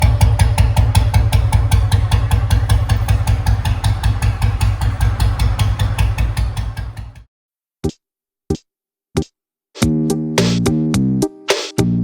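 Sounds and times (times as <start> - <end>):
motorcycle engine idling: 0.0 - 7.2.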